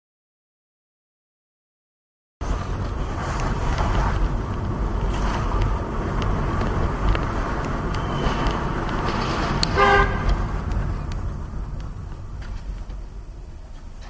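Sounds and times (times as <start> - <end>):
car road and engine noise: 2.4 - 14.0
faint clicks: 5.5 - 13.0.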